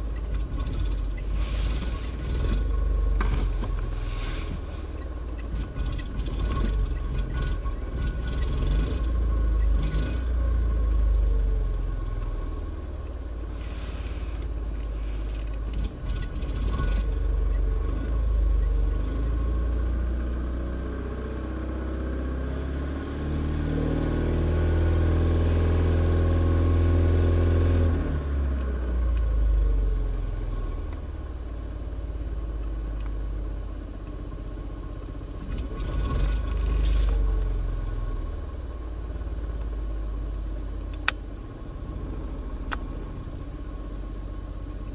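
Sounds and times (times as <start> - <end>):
car engine running and revving: 0.0 - 44.9.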